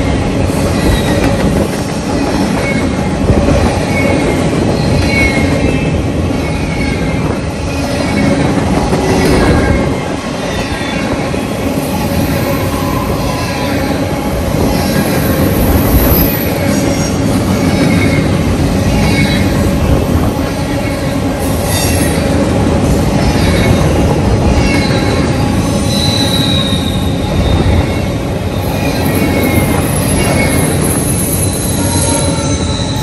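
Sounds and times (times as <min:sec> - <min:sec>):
freight cars rumbling on rails: 0:00.0 - 0:33.0
wheel squeals: 0:23.2 - 0:33.0.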